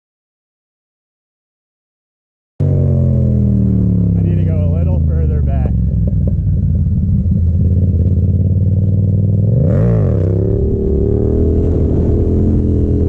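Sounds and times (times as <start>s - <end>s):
engine throttle blip: 2.6s - 13.0s
motorcycle engine running: 2.6s - 13.0s.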